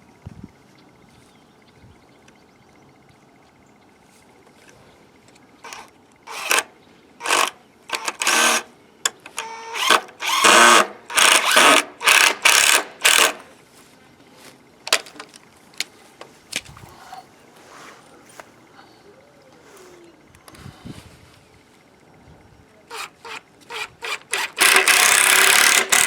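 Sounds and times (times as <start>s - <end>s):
power drill driving screws: 5.6s - 8.7s, 9.3s - 13.5s, 22.9s - 26.0s.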